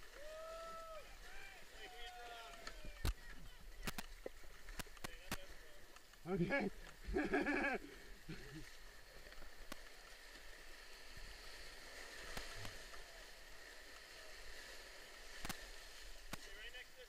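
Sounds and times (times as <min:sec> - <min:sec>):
faint sharp clicks: 0:02.4 - 0:06.2, 0:06.8 - 0:07.0, 0:09.2 - 0:10.0, 0:15.3 - 0:16.5.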